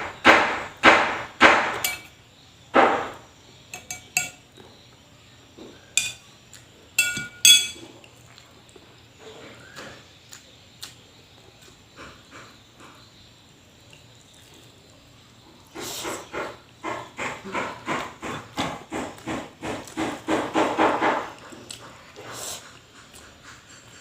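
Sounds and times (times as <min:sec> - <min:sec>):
chewing: 0:07.8 - 0:09.0, 0:09.6 - 0:12.2, 0:21.3 - 0:24.0.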